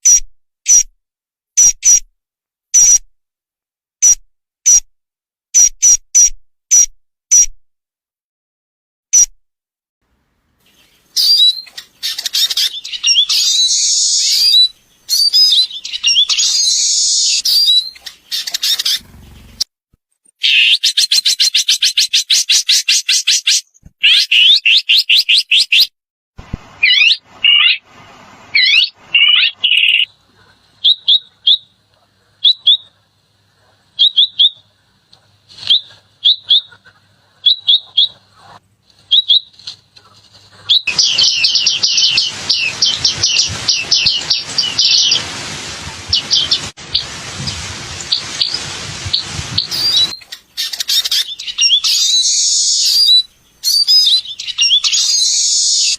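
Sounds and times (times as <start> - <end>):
songbirds singing: 10.5 - 19.7, 26.8 - 27.8, 28.5 - 45.3, 46.1 - 55.9.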